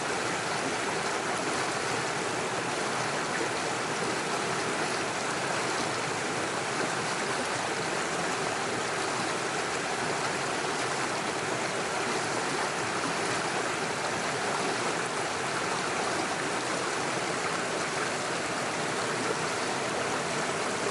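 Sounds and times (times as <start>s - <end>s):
stream running over stones: 0.0s - 20.9s.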